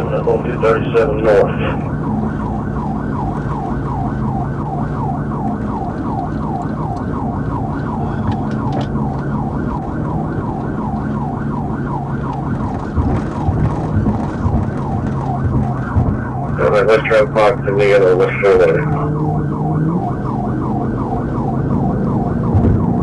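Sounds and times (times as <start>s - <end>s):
engine and road noise: 0.0s - 23.0s
police siren yelping: 0.0s - 23.0s.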